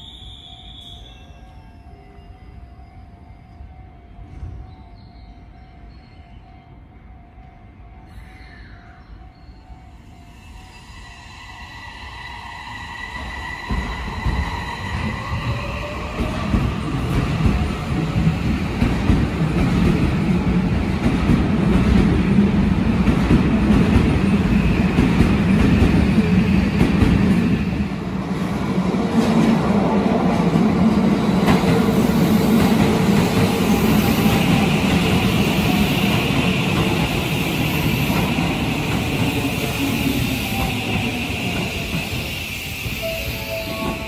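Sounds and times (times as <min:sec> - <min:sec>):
train wheels rumbling on rail: 0:11.5 - 0:44.0.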